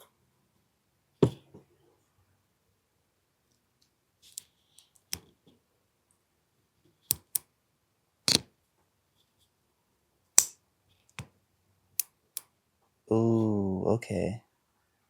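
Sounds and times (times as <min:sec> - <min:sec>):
pistol action clicks and snaps: 0:07.1 - 0:07.5.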